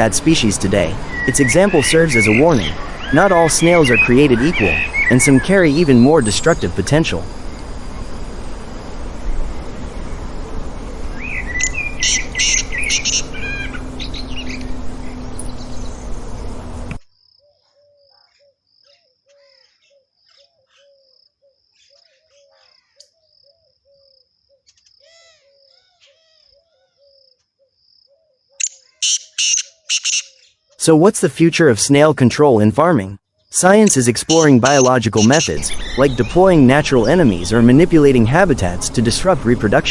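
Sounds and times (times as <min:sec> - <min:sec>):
birds chirping: 0:00.0 - 0:08.6, 0:09.4 - 0:30.8, 0:33.3 - 0:39.9
rumbling background noise: 0:00.0 - 0:17.0, 0:33.6 - 0:39.9
pulsing high insect trill: 0:05.3 - 0:13.8, 0:28.6 - 0:30.4, 0:33.9 - 0:35.6
short low calls: 0:33.6 - 0:37.6.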